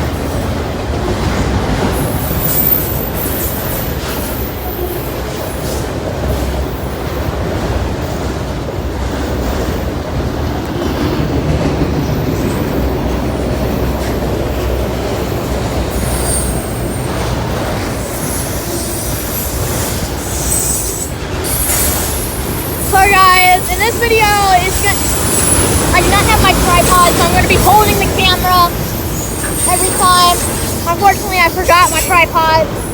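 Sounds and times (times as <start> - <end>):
train cars rumbling: 0.0 - 32.9
high wheel squeals: 15.9 - 17.2, 18.0 - 32.9.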